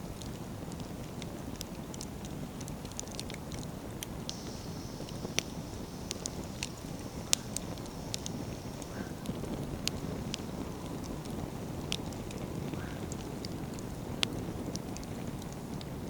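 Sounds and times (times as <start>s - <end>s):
wood fire crackling: 0.0s - 16.0s
faint high hiss: 4.1s - 16.0s.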